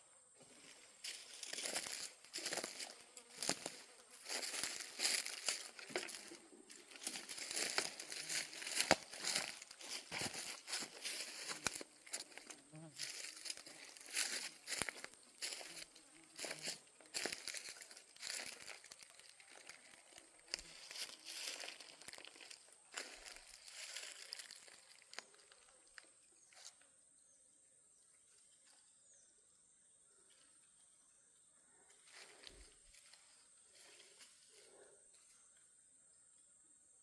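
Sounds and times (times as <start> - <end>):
faint high insect drone: 0.0 - 37.0
footsteps crunching through dry leaves: 0.5 - 25.5.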